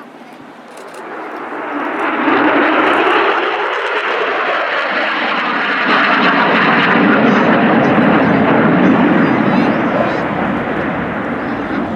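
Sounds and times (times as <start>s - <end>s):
jet engine roar: 0.0s - 11.9s.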